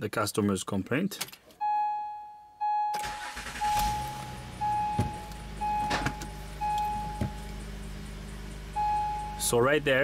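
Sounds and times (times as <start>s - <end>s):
car warning chime beeps: 1.6s - 10.0s
car engine idling: 3.0s - 10.0s.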